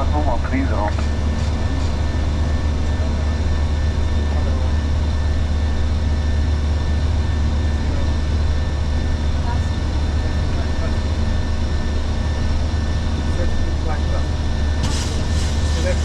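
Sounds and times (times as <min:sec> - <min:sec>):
aircraft low rumble: 0:00.0 - 0:16.0
airflow hiss: 0:14.8 - 0:16.0.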